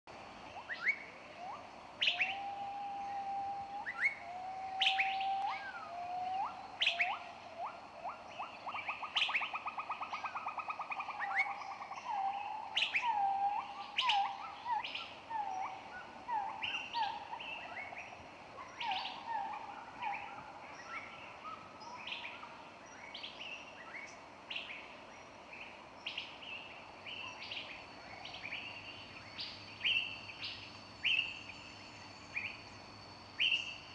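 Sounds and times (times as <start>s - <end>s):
songbirds chirping: 0.1s - 33.9s
bird whistles and trills: 0.6s - 18.0s.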